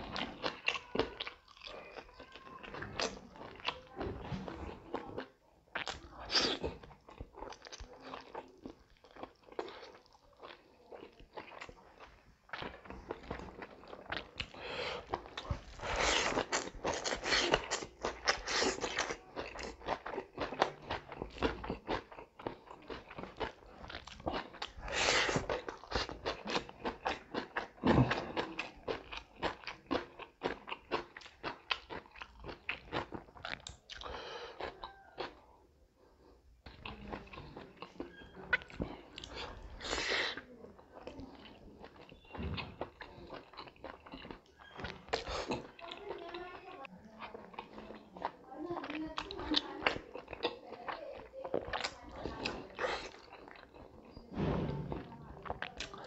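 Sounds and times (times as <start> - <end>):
wet chewing and lip-smacking: 0.0 - 35.5, 36.2 - 54.3, 55.4 - 56.0
biting: 5.8 - 35.3, 36.7 - 46.3.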